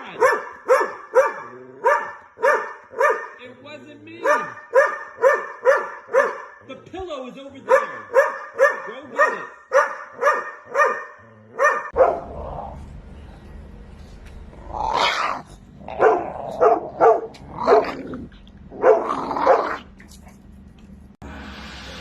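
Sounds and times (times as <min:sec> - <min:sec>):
dog barking: 0:00.0 - 0:03.4, 0:04.2 - 0:06.7, 0:07.7 - 0:12.4, 0:16.0 - 0:18.1, 0:18.7 - 0:19.8
dog growling: 0:01.3 - 0:02.0, 0:11.2 - 0:12.9, 0:14.5 - 0:20.0.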